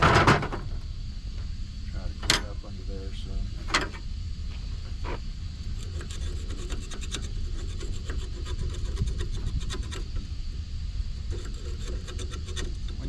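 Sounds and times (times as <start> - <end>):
scraping strokes on metal: 5.1 - 10.3, 11.2 - 13.0.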